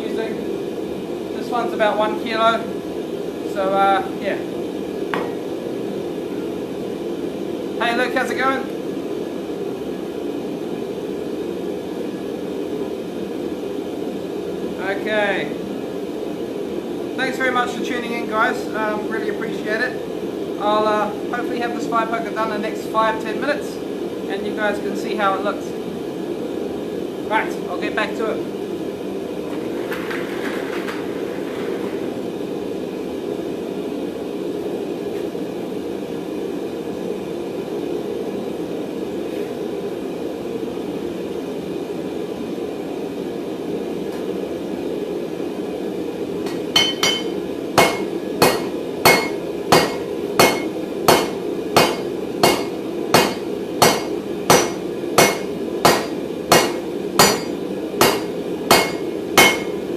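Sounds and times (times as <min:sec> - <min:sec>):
hammer striking metal on anvil: 0:05.2 - 0:05.4, 0:46.5 - 0:59.8.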